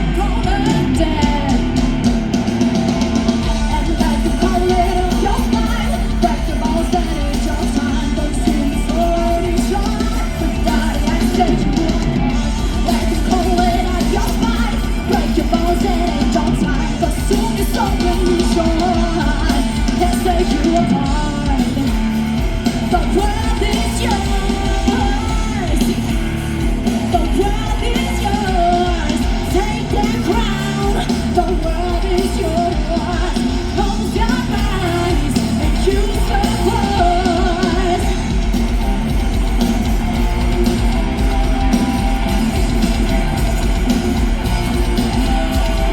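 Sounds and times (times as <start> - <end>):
bass: 0.0 - 45.9
drums: 0.0 - 45.9
electric guitars: 0.0 - 45.9
person singing: 0.0 - 45.9.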